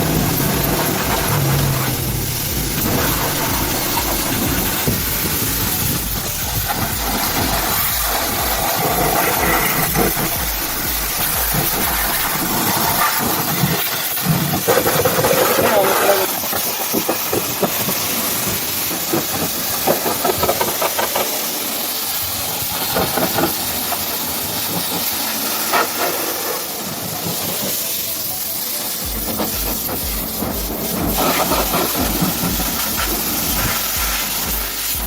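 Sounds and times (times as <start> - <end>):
low regular pulsing: 0.0 - 13.7, 28.3 - 35.0
pressure washer spraying water: 0.0 - 35.0.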